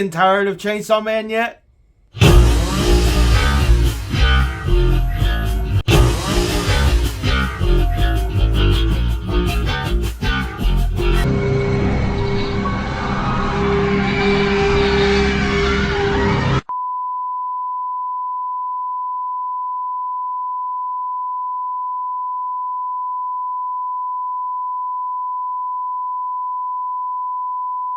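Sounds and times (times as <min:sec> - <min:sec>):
guitar-led outro music: 0:02.2 - 0:16.6.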